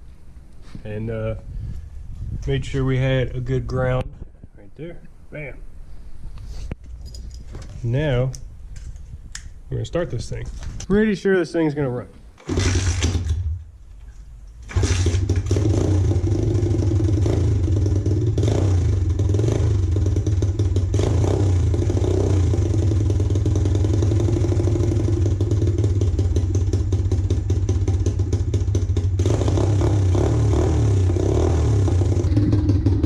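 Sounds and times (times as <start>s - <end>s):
small motorbike engine running: 14.7s - 33.0s.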